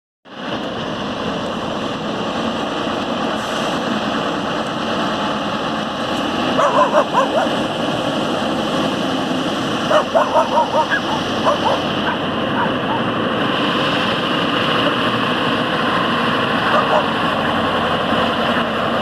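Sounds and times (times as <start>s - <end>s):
truck engine running: 0.3s - 19.0s
dog barking: 6.6s - 7.6s, 9.9s - 13.1s, 16.6s - 17.1s.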